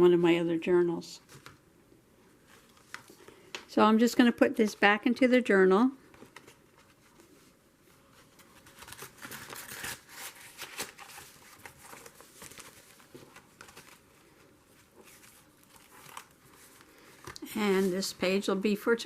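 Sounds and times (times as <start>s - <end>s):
paper rustling and crinkling: 6.1s - 18.4s.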